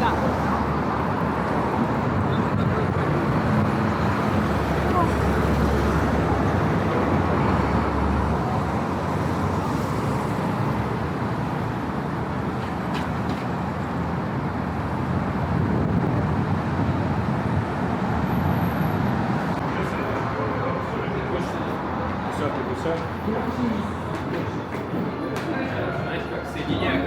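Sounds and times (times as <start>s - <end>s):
passing cars on a street: 0.0s - 27.0s.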